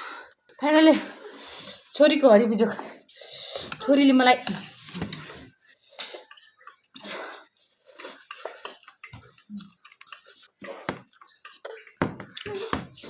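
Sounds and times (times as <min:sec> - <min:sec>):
cutlery clinking on a dish: 0:06.1 - 0:06.8, 0:08.0 - 0:13.0.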